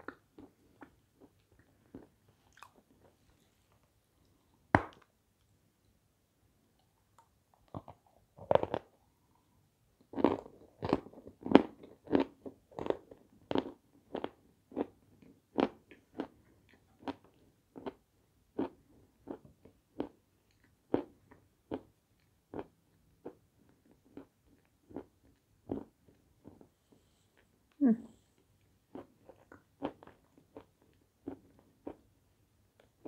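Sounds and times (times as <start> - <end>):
meringue being chewed: 0.0 - 4.4.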